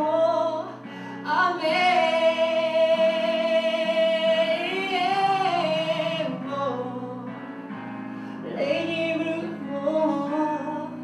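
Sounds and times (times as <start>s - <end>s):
soft musical accompaniment: 0.0s - 11.0s.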